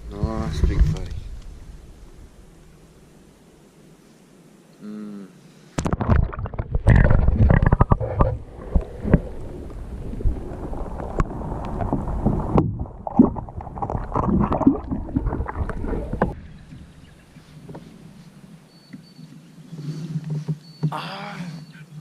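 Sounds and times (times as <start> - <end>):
water sloshing around kayak: 5.8 - 16.8
wind buffeting microphone: 6.1 - 18.1.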